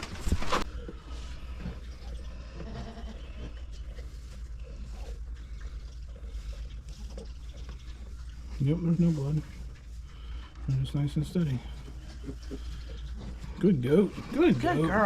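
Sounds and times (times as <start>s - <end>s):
goat bleating: 2.6s - 3.2s.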